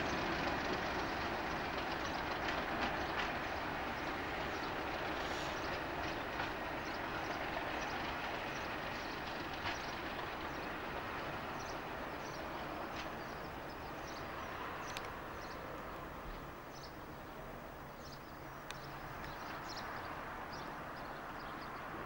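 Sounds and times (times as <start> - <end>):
train rushing past: 0.0 - 15.7.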